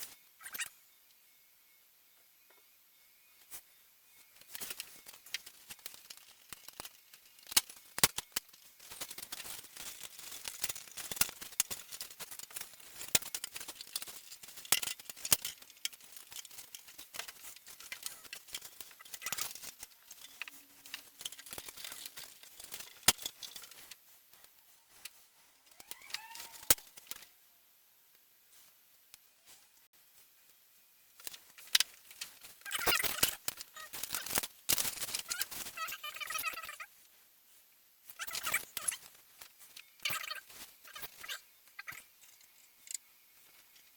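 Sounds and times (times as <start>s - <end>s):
wooden parts and tools clicking: 4.3s - 27.3s, 31.2s - 36.8s.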